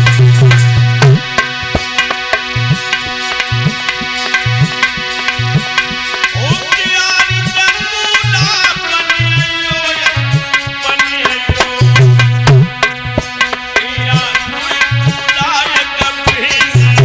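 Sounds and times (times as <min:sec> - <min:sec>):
tabla bass strokes: 0:00.0 - 0:06.8, 0:07.4 - 0:17.0
gliding melody line: 0:00.0 - 0:07.0
sustained held chords: 0:00.0 - 0:17.0.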